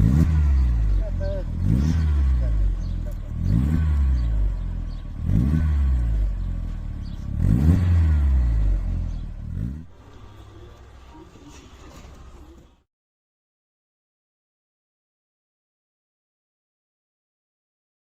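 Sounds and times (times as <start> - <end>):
car engine revving: 0.0 - 12.8.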